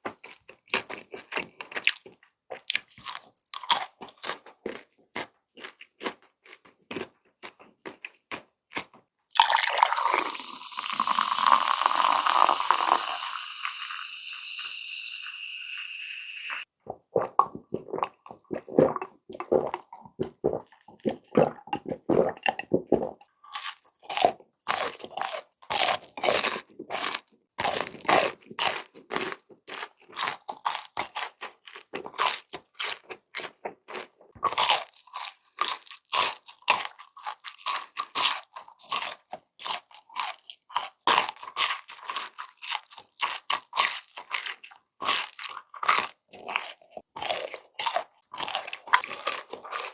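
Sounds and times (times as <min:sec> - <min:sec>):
person chewing crispy food: 0:00.0 - 0:49.9.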